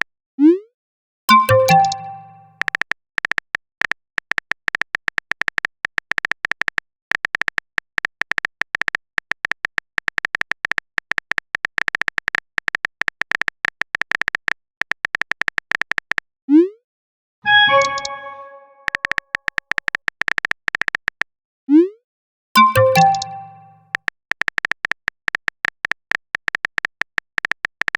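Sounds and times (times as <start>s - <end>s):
phone keyboard typing clicks: 1.3s - 16.2s, 17.5s - 21.3s, 22.6s - 27.9s
message sent swoosh: 17.5s - 19.0s.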